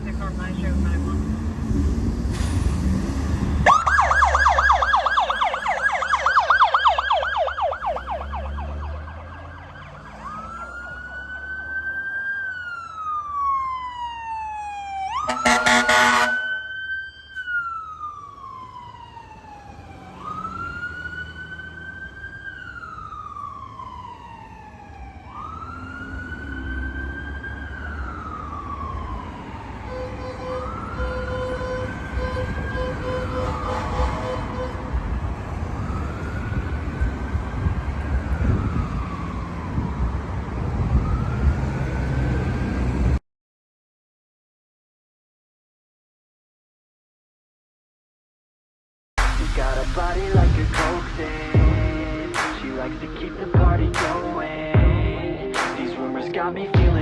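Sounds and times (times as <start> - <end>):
emergency siren yelp and wail: 3.2 - 43.2, 49.3 - 57.0
loud horn blast: 15.2 - 16.6, 29.9 - 35.6
low engine rumble: 49.2 - 57.0.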